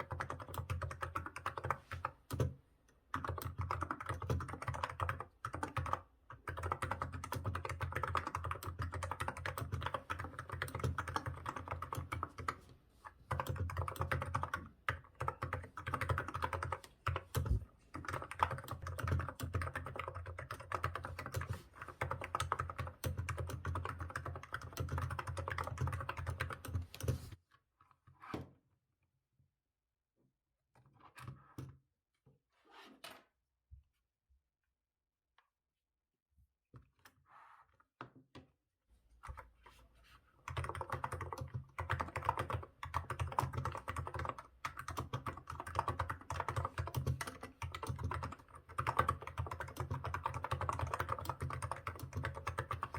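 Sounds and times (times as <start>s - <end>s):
fast keyboard typing: 0.0s - 27.3s, 40.4s - 52.9s.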